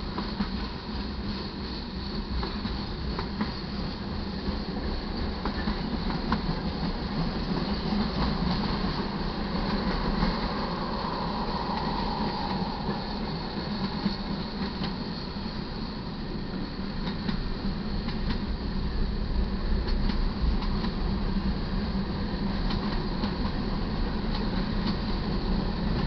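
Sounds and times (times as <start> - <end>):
train cars clicking and clanking: 0.0 - 18.8, 19.8 - 26.0
steel wheels rumbling on rails: 0.0 - 26.0.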